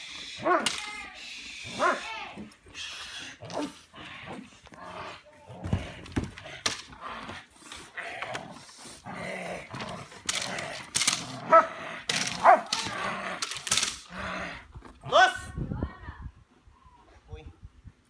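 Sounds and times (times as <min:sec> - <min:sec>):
dull thumps: 0:05.6 - 0:07.4
dog barking sharply: 0:12.4 - 0:12.7.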